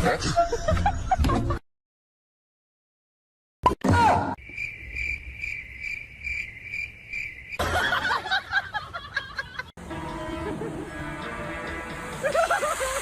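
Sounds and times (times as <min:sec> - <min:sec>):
insect-like chirping: 0:04.4 - 0:07.6.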